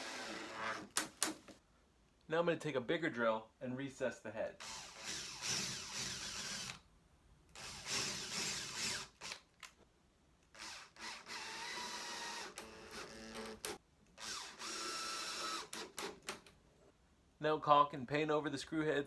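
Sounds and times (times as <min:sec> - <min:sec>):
cordless drill into wood: 0:00.0 - 0:01.4, 0:04.6 - 0:06.8, 0:07.6 - 0:09.4, 0:10.6 - 0:16.4.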